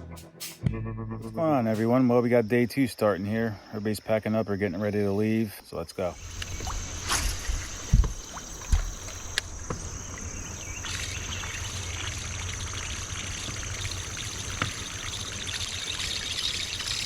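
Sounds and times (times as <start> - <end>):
insects droning: 1.0 - 17.0
river water trickling and lapping: 6.2 - 17.0.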